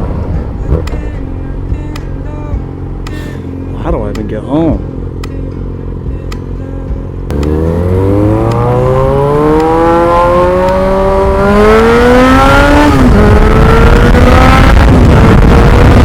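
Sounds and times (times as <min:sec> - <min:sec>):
motorcycle engine revving: 0:00.7 - 0:16.0.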